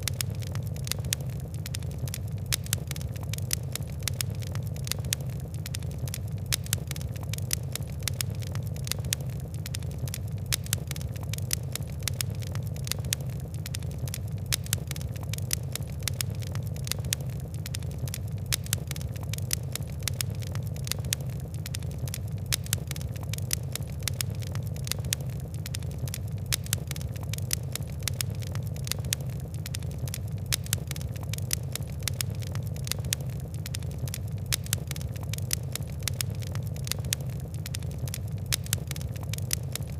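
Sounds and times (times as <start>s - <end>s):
fire crackling and popping: 0.0s - 39.9s
low rumble of flame: 0.0s - 39.9s.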